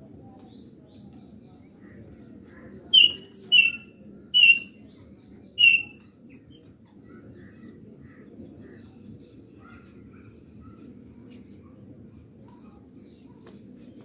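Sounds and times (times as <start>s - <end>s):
faint bird chirps: 2.9s - 8.2s
bird squawking loudly: 3.0s - 4.7s, 5.6s - 6.0s.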